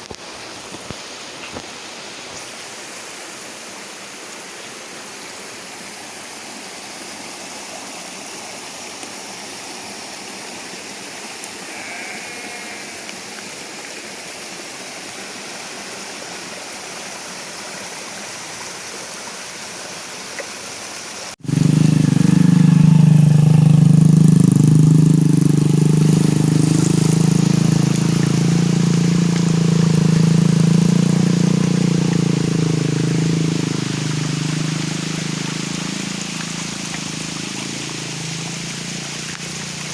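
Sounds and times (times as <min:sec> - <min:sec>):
steady rain falling: 0:00.0 - 0:39.9
engine humming close by: 0:21.4 - 0:39.9.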